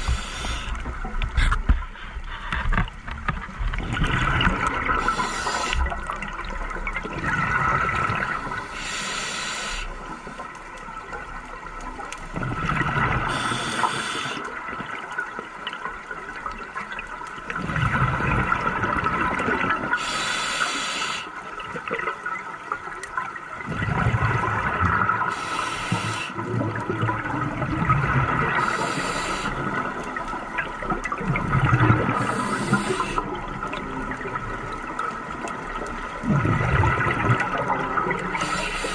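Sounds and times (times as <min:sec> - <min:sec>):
regulator inhalation rush: 0:00.0 - 0:00.8, 0:05.0 - 0:06.0, 0:08.3 - 0:10.3, 0:13.3 - 0:14.5, 0:20.0 - 0:21.3, 0:25.3 - 0:26.4, 0:28.6 - 0:29.8, 0:32.2 - 0:33.3, 0:38.3 - 0:38.9
exhaled bubbles gurgling: 0:00.0 - 0:38.9.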